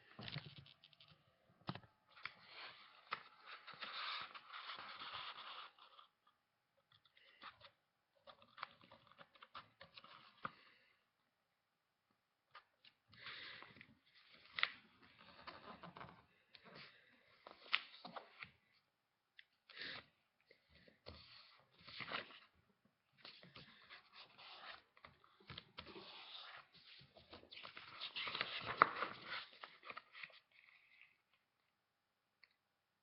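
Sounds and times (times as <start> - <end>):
paper rustling and creasing: 2.1 - 6.1, 23.2 - 31.2.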